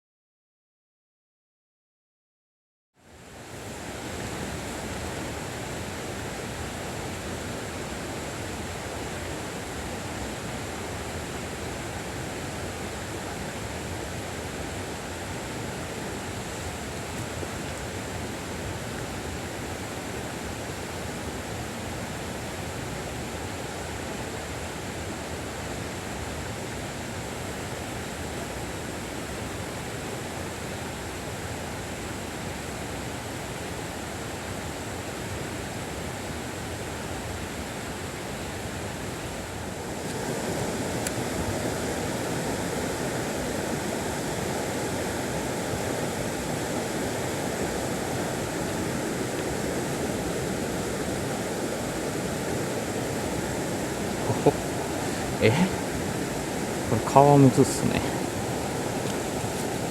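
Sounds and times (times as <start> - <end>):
stream water rushing: 3.0 - 59.9.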